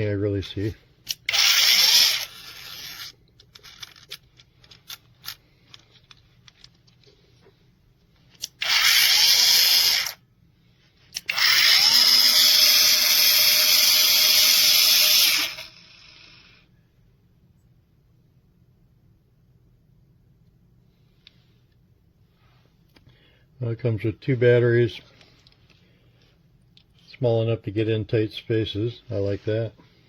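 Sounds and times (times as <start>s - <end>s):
angle grinder spinning: 1.1s - 4.2s, 8.4s - 10.2s, 11.2s - 16.5s.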